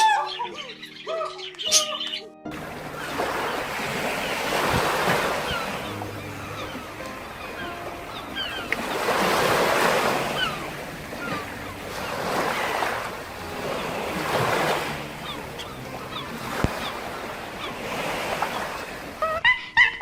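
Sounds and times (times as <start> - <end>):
waves breaking: 2.5 - 19.4
high chirps: 5.2 - 17.8.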